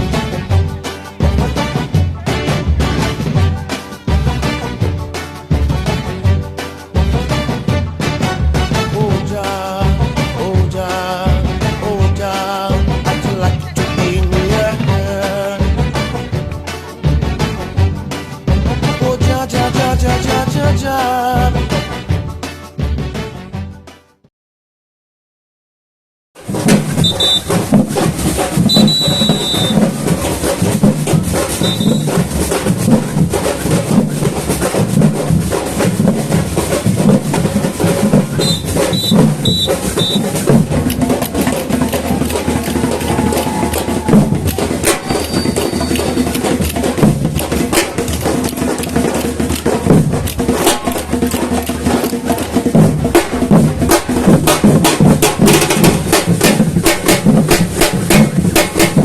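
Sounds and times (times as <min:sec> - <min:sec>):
samba drum group playing: 0:00.0 - 0:22.1, 0:26.4 - 0:59.0
short high whistle signals: 0:26.9 - 0:27.6, 0:28.6 - 0:29.9, 0:31.6 - 0:32.3, 0:38.4 - 0:40.4, 0:45.0 - 0:46.2.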